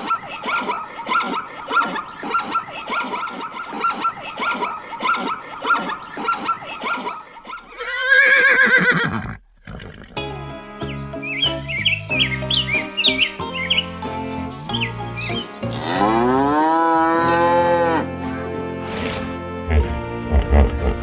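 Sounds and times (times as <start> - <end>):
loud drawn-out animal call: 0.4 - 10.2
music: 10.2 - 21.0.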